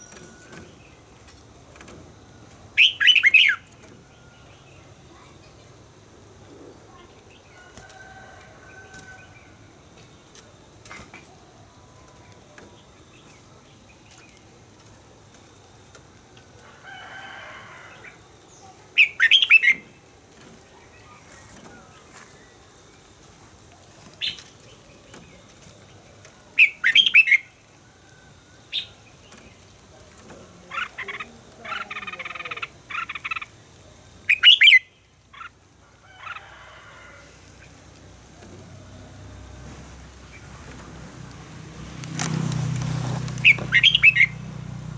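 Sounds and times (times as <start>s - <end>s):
bulbul singing warbled phrases: 2.8s - 3.7s, 18.5s - 19.9s, 26.5s - 27.6s, 30.5s - 33.6s, 34.2s - 35.6s, 43.4s - 44.5s
short bird calls: 43.4s - 44.4s.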